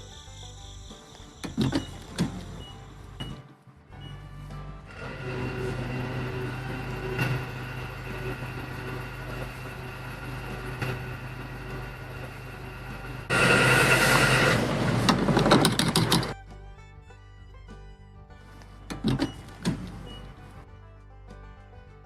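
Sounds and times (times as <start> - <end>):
loud rattling grinding noise: 4.4 - 16.4
small motor humming: 4.9 - 16.4.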